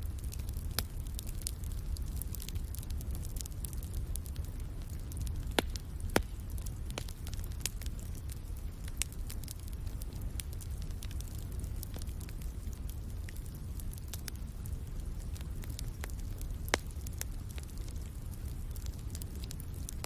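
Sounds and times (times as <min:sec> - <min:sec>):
fire popping and snapping: 0:00.0 - 0:20.0
wood fire crackling: 0:00.0 - 0:20.0.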